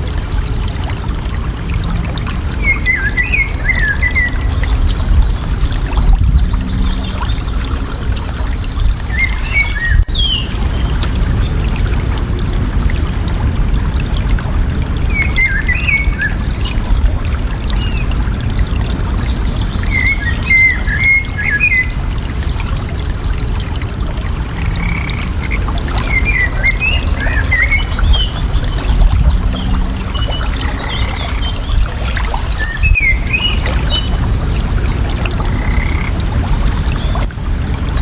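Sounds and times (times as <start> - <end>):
water running and splashing: 0.0 - 15.0, 22.7 - 38.0
songbird chirping: 24.2 - 36.2.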